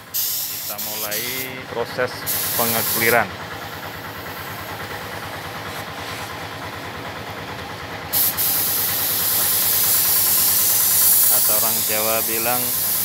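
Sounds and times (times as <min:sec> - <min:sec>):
spray gun hissing: 0:00.0 - 0:01.5, 0:02.3 - 0:03.2, 0:08.1 - 0:13.0
compressor running: 0:00.0 - 0:13.0.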